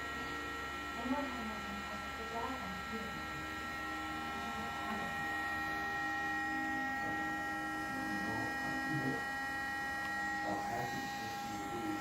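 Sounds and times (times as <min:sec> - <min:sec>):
cooling fan whine: 0:00.0 - 0:12.0.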